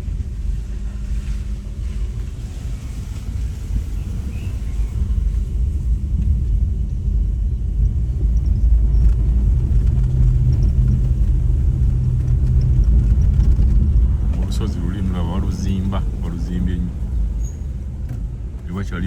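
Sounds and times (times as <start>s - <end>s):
engine hum: 0.0s - 19.0s
vehicle road rumble: 0.0s - 19.0s.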